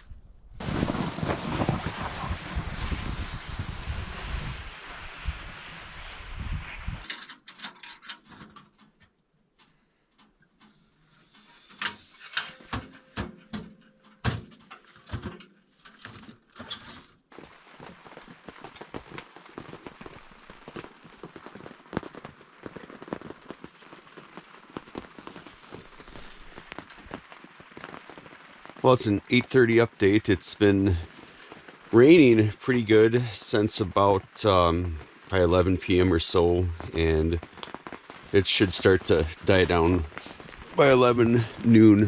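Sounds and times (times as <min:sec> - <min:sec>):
rain on a tent: 0:00.0 - 0:09.0, 0:14.3 - 0:42.0.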